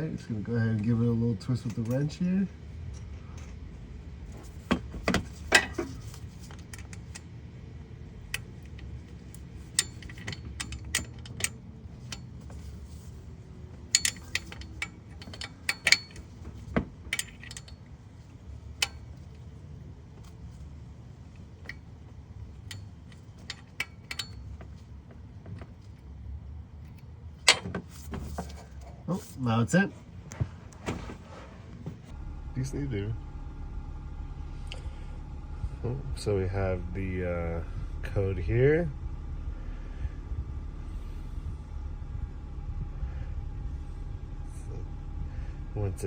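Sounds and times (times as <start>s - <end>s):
steady low hum: 0.0s - 46.0s
wrench clinking on metal: 8.3s - 13.1s, 13.8s - 18.0s, 18.6s - 19.5s, 21.3s - 24.9s.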